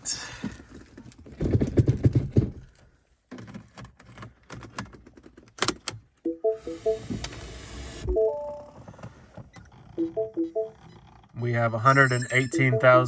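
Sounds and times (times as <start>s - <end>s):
short electronic beeps: 10.0s - 13.0s.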